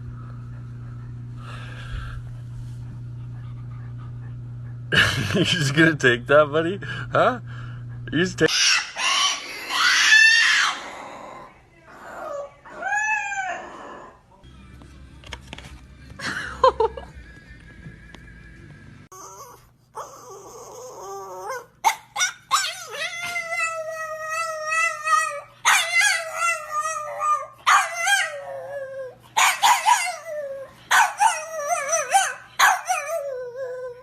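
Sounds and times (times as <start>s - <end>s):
dog yipping: 8.5s - 10.8s, 19.1s - 28.6s, 29.4s - 30.3s, 30.9s - 33.4s
dog howling: 8.6s - 14.3s, 19.1s - 34.0s.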